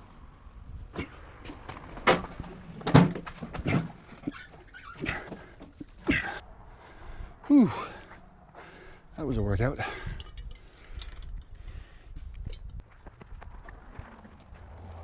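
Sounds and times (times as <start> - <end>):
knocks and clunks: 0.9 - 6.4
man breathing and grunting: 3.5 - 11.0.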